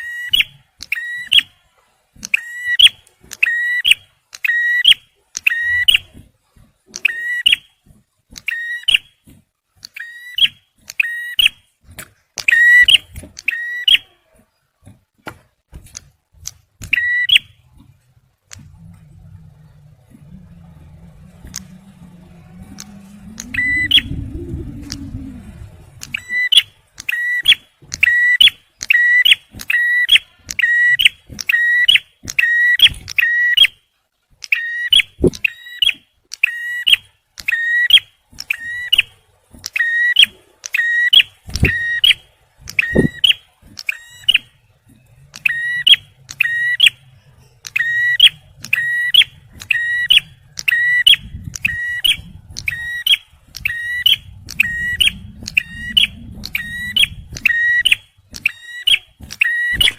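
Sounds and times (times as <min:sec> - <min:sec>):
bird repeating sharp call: 0:22.8 - 0:25.1.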